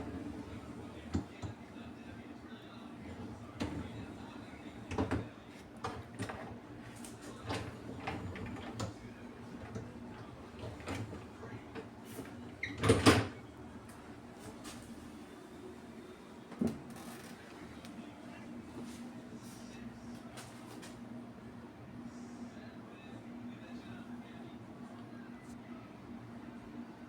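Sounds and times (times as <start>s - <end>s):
dishwasher clatter: 12.6s - 13.4s.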